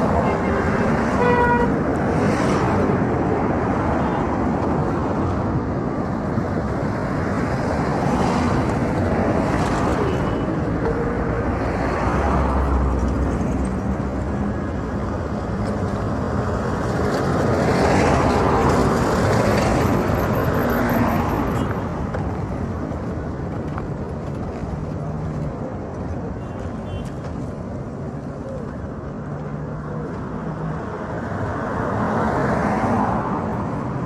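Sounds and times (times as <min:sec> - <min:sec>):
cars passing: 0:00.0 - 0:34.0
road traffic rush: 0:00.0 - 0:34.0.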